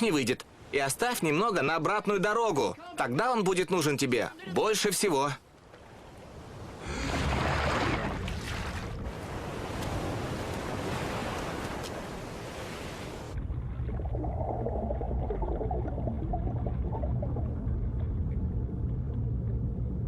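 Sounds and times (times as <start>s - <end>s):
sea waves washing: 5.8s - 17.8s
muffled underwater rumble: 13.4s - 20.0s.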